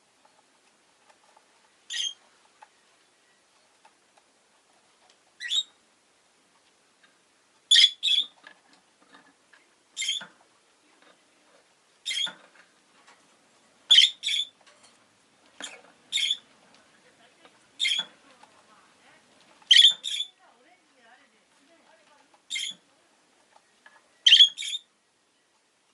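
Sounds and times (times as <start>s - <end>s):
lovebird chirping: 1.9s - 3.6s, 5.4s - 5.8s, 7.7s - 8.4s, 10.0s - 10.3s, 12.0s - 12.4s, 13.9s - 14.6s, 15.6s - 16.5s, 17.8s - 18.2s, 19.7s - 20.4s, 22.5s - 22.8s, 23.6s - 25.5s.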